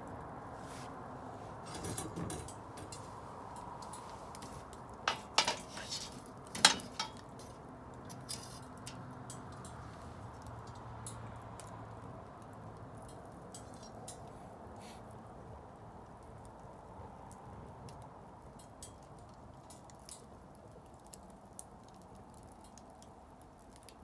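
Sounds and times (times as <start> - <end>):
low rush of flames: 0.0 - 18.2
bonfire crackling: 0.0 - 24.0.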